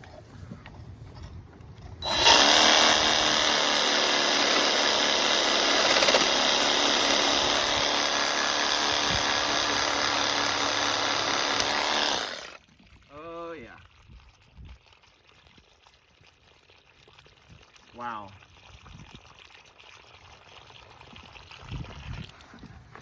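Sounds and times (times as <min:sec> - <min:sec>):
power tool cutting pipe: 0:02.0 - 0:12.6.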